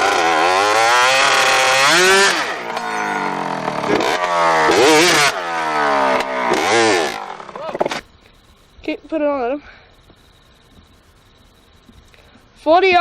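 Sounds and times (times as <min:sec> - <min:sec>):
motorcycle engines revving: 0:00.0 - 0:09.2.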